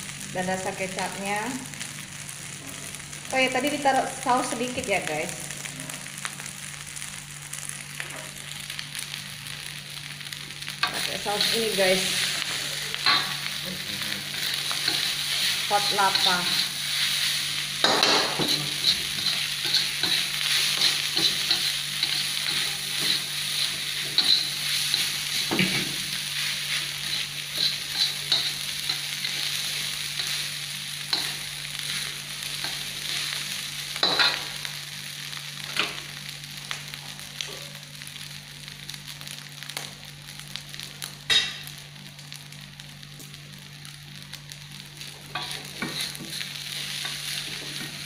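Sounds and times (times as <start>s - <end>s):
rice sizzling in a wok: 0.0s - 48.0s
metal spatula scraping a wok: 14.3s - 25.8s, 26.4s - 29.5s, 45.4s - 46.4s.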